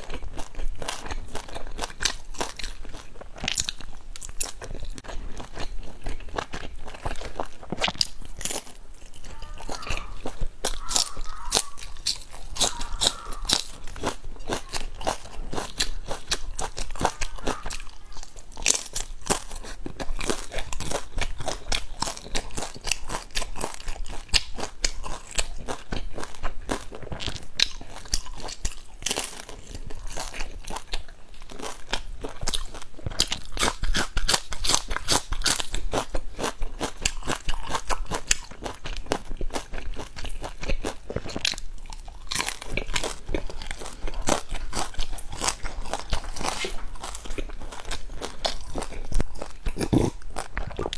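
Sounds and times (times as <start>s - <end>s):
crunchy chewing: 0.0s - 50.9s.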